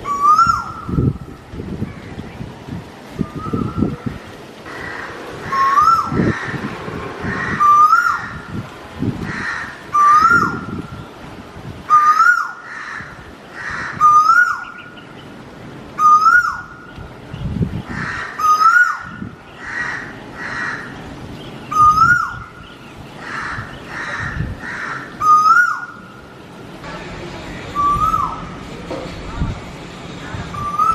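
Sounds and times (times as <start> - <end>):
low rumbles: 0.8 - 11.8.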